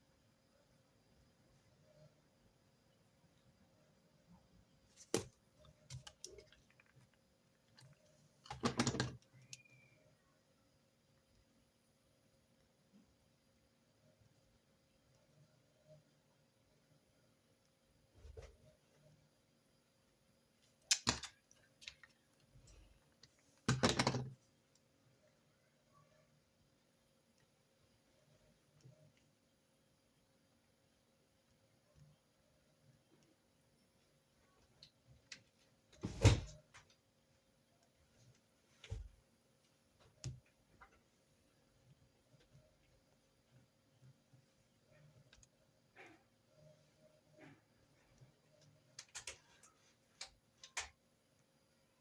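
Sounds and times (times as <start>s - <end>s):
desk clicks and taps: 8.4s - 9.6s, 23.7s - 24.4s
stationery clicking and knocking: 23.7s - 24.4s.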